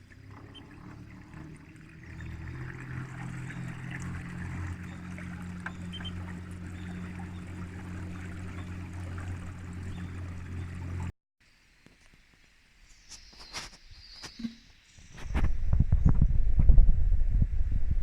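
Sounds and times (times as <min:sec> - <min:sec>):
motor droning: 0:00.0 - 0:11.1
moving water splashing: 0:00.0 - 0:11.1.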